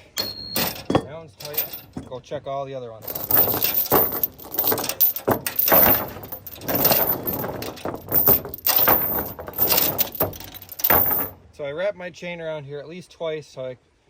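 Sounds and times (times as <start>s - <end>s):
chains rattling and clanking: 0.0s - 2.4s, 3.0s - 11.5s.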